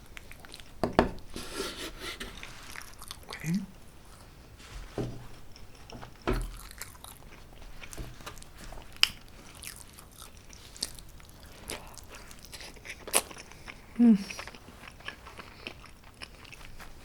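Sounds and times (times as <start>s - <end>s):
biting and chewing food: 5.4s - 17.0s.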